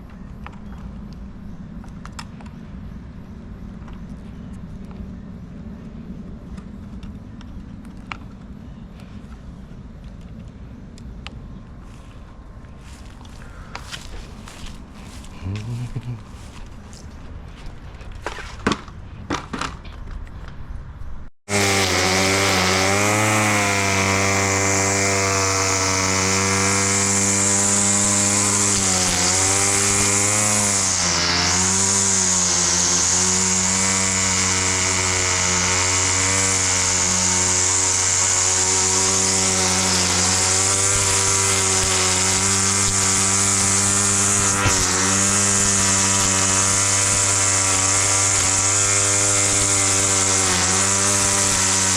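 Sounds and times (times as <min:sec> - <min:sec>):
lawn mower engine running: 0:21.5 - 0:51.9.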